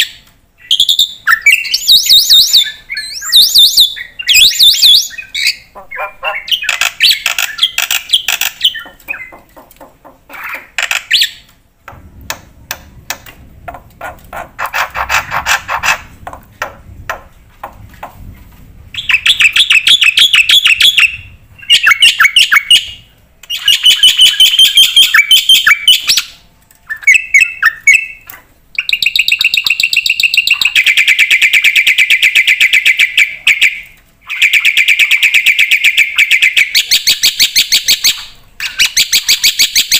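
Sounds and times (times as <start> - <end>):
starling singing: 0.6 - 9.6, 19.0 - 28.2.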